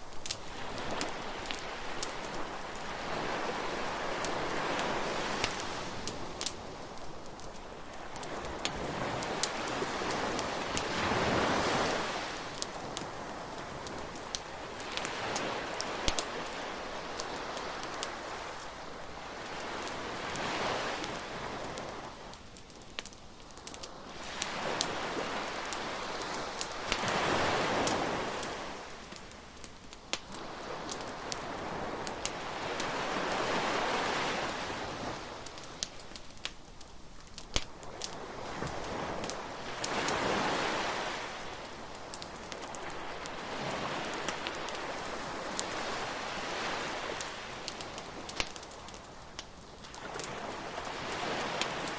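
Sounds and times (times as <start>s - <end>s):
bonfire crackling and popping: 0.0s - 51.9s
surf breaking on beach: 8.2s - 18.6s, 24.2s - 28.9s, 38.2s - 48.3s, 50.0s - 51.9s.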